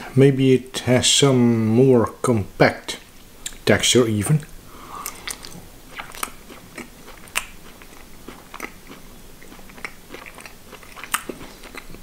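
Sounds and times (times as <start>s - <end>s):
chewing sausage clicks: 5.1s - 12.0s.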